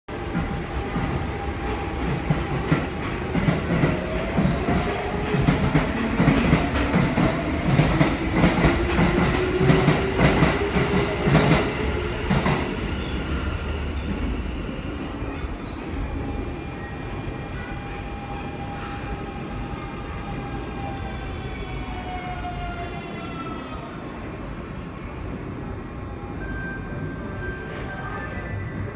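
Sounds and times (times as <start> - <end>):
train wheels clacking over rails: 0.2 - 14.3
train braking: 0.3 - 28.9.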